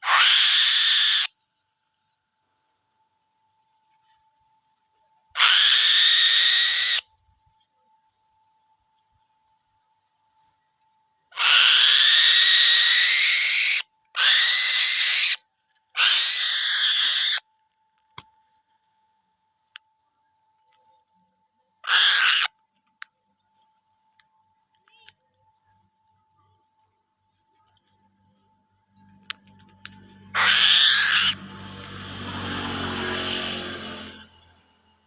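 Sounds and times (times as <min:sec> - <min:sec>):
raptor screeching: 0:00.0 - 0:01.3, 0:05.4 - 0:07.0, 0:11.4 - 0:15.4, 0:16.0 - 0:17.4, 0:21.8 - 0:22.5, 0:30.3 - 0:34.3
faint clicks: 0:24.1 - 0:25.4, 0:29.0 - 0:30.1.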